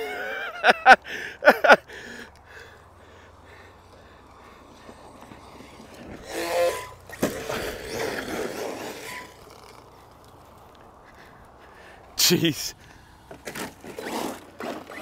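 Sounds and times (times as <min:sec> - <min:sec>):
rc truck motor whine: 0:02.3 - 0:10.8, 0:13.4 - 0:15.0
tyres scrabbling over dirt: 0:03.1 - 0:15.0.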